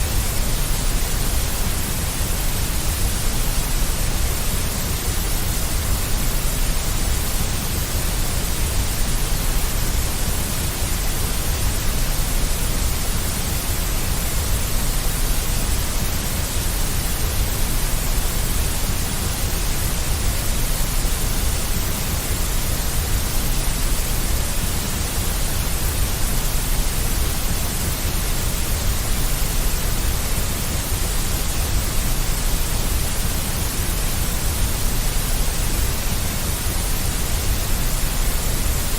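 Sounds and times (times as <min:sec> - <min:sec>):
deep white noise: 0:00.0 - 0:38.9.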